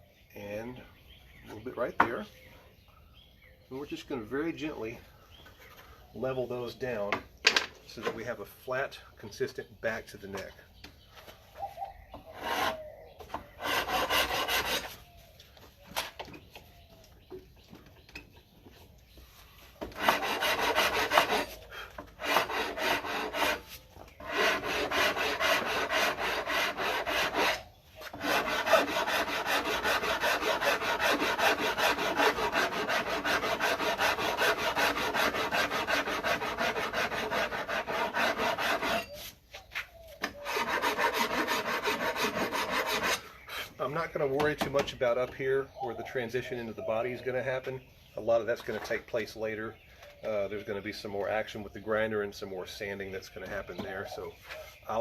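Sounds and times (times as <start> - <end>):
rasp scraping wood: 12.1 - 15.0, 19.6 - 39.4, 40.2 - 43.8.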